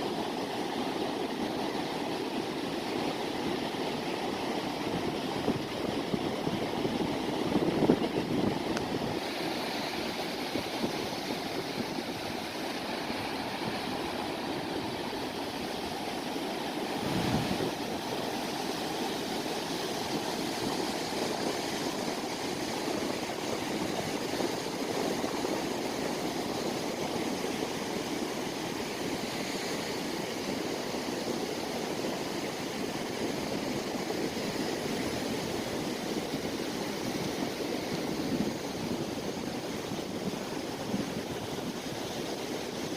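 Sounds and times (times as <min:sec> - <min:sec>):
sea waves washing ashore: 0:00.0 - 0:42.9.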